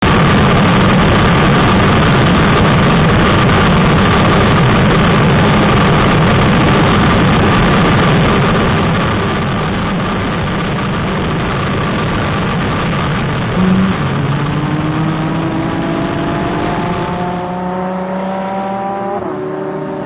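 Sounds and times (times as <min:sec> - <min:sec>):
motorcycle engine running: 0:00.0 - 0:20.0
wind rushing over microphone: 0:00.0 - 0:20.0.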